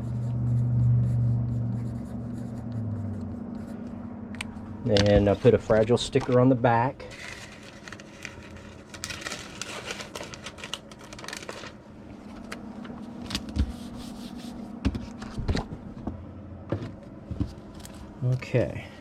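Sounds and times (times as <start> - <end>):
packing materials rustling: 4.9 - 12.6.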